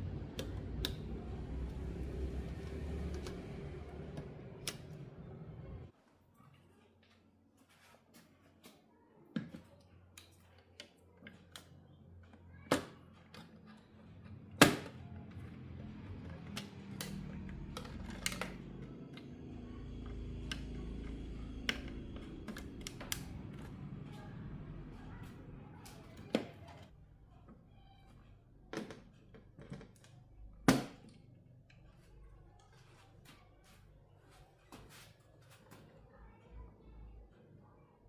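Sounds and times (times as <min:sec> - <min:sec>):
low steady hum: 0:00.0 - 0:05.9, 0:13.8 - 0:28.7.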